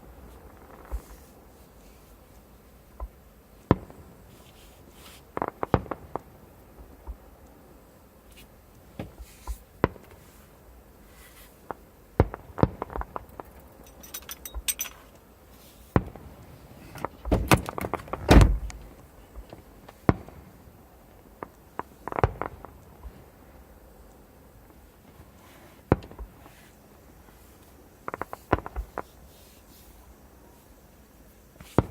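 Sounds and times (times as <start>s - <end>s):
fireworks crackling: 0.0s - 1.5s, 3.7s - 7.4s, 9.1s - 13.8s, 15.5s - 23.8s, 24.6s - 31.9s
fireworks bangs: 5.3s - 6.4s, 20.0s - 20.6s, 21.4s - 23.2s, 28.0s - 29.1s, 31.6s - 31.9s.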